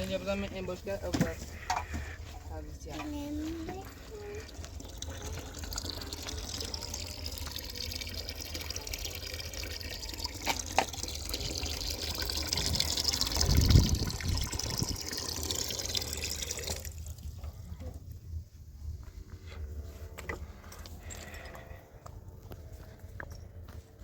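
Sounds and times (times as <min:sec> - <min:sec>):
water running: 0:00.0 - 0:17.3.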